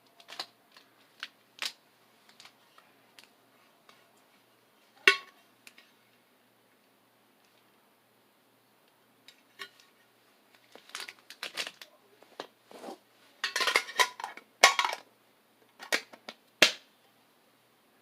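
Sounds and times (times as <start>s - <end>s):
foil wrapper crinkling and tearing: 10.7s - 11.9s.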